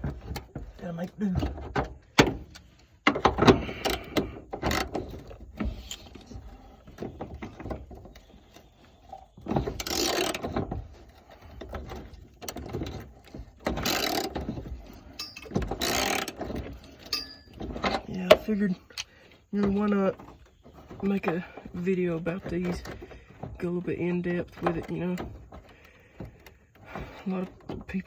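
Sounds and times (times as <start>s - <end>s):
ratchet wrench clicking: 15.2s - 16.4s.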